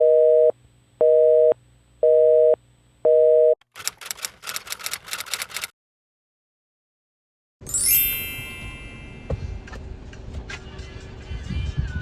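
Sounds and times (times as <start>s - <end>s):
rapid clicking: 3.7s - 5.7s.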